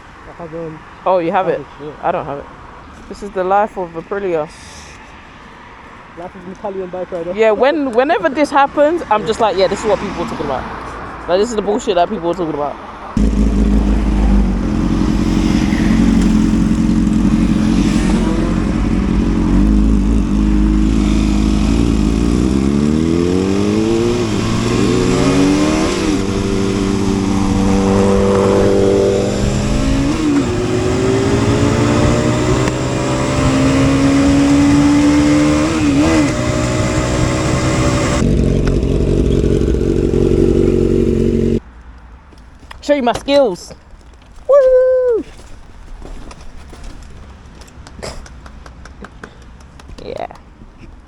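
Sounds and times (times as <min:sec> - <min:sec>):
motorcycle engine accelerating: 0:13.2 - 0:41.6
wind rumble on microphone: 0:23.5 - 0:41.2.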